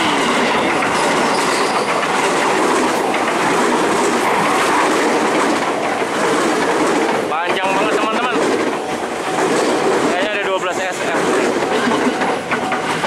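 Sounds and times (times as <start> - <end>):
electric train passing: 0.0 - 13.0.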